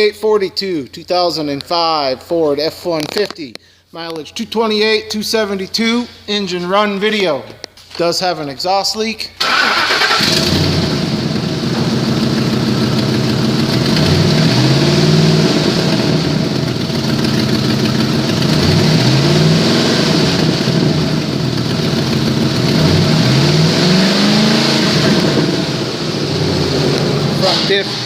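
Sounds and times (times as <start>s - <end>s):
truck engine idling and revving: 9.4s - 28.0s.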